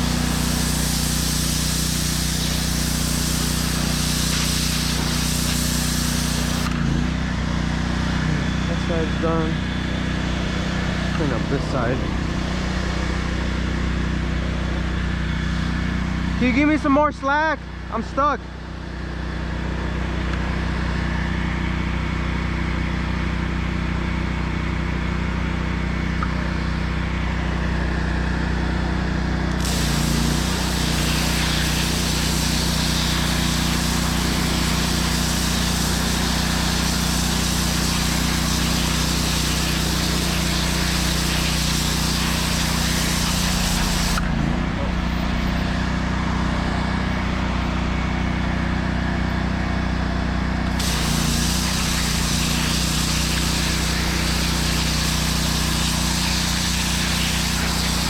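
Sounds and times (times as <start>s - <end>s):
water spray blasting pavement: 0.0s - 14.6s, 29.5s - 44.6s, 50.7s - 58.0s
pressure washer engine running: 0.0s - 58.0s.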